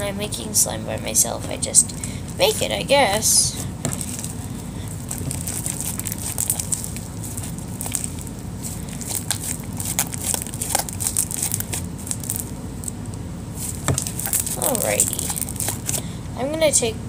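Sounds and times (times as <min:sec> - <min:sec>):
slime clicking and popping: 0:08.9 - 0:13.0.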